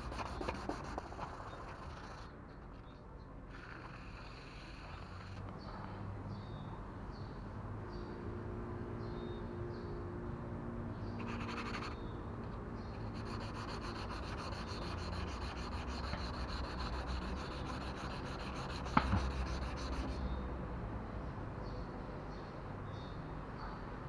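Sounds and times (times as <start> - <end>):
sandpaper scrubbing plastic: 0.0 - 2.0, 13.0 - 20.2
sharp knock: 18.9 - 19.3.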